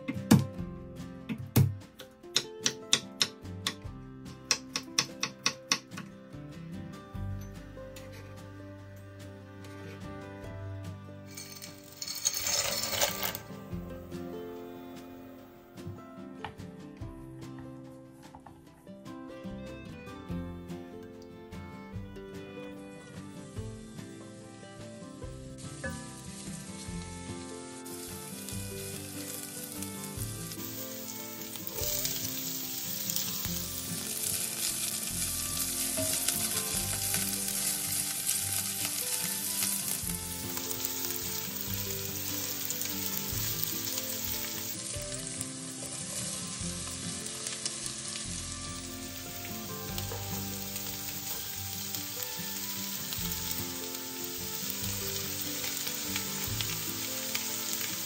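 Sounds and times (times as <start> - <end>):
garlic and onion sizzling in oil: 11.3 - 14.1, 23.4 - 58.0.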